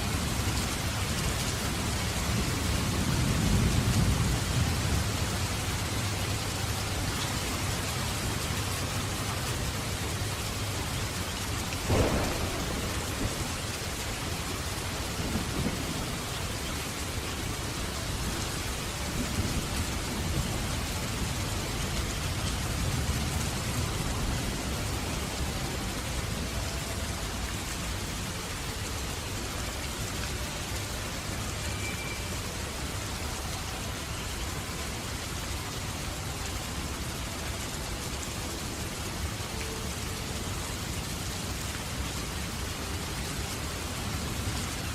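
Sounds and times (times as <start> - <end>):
heavy rain: 0.0 - 44.9
rumbles of thunder: 11.7 - 17.2
thunderclap: 11.8 - 13.9.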